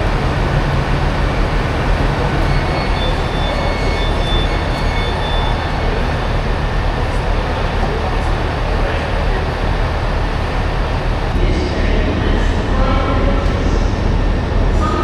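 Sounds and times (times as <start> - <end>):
train engine low drone: 0.0 - 15.0
faint high squeal: 2.1 - 6.4.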